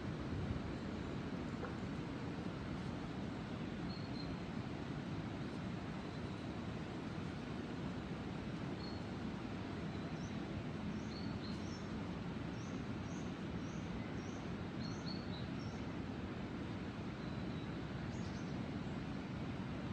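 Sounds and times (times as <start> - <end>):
low background noise: 0.0 - 19.9
small songbird chirping: 9.9 - 11.9, 12.6 - 15.8.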